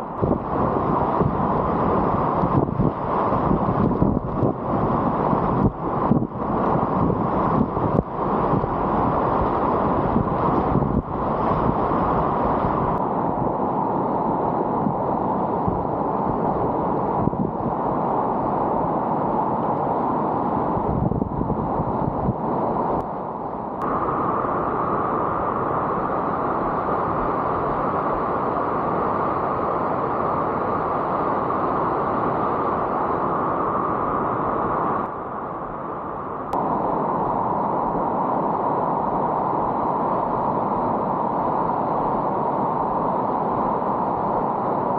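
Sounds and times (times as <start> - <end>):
wind buffeting microphone: 0.0 - 23.1
rushing river whitewater: 22.3 - 44.9.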